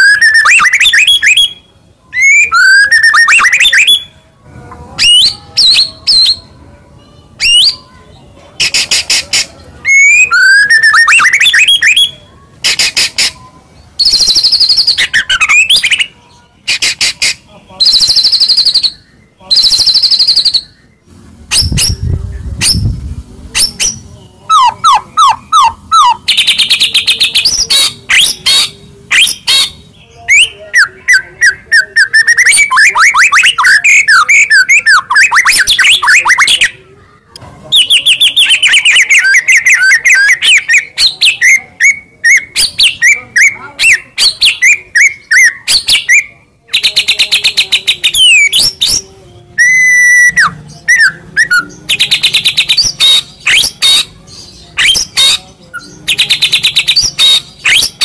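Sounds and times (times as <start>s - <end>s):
held bird whistle: 0.0s - 4.1s, 8.6s - 13.1s, 49.6s - 54.1s, 56.2s - 58.0s
songbird singing with trills: 0.0s - 4.2s, 5.0s - 23.0s, 23.6s - 36.8s, 37.7s - 58.0s.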